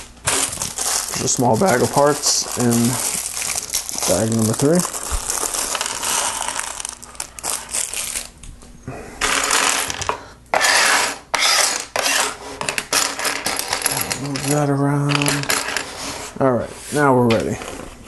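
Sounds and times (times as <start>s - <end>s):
plastic pieces clattering: 0.2s - 8.3s, 9.2s - 10.2s, 12.0s - 15.9s.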